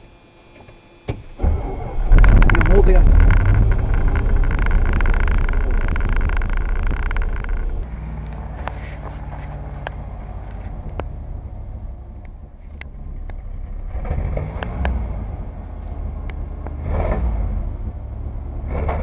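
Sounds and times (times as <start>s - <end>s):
engine idling: 1.2s - 16.9s
sharp clicks: 2.1s - 8.4s.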